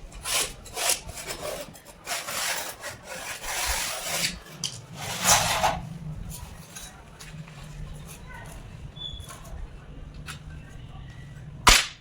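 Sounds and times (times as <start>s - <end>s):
hand tool scraping tile: 0.0s - 5.8s.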